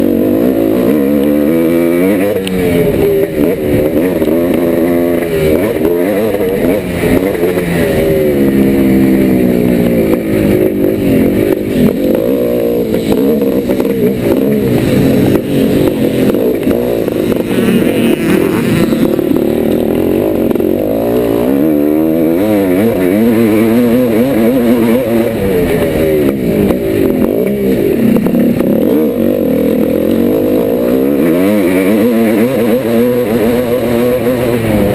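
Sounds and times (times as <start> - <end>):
motocross bike engine revving: 0.0 - 34.9.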